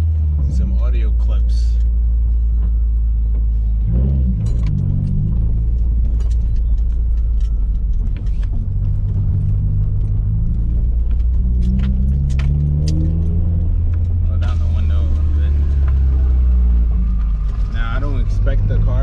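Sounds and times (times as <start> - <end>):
car engine deep drone: 0.0 - 19.0
light clicks and rattles: 4.4 - 14.6.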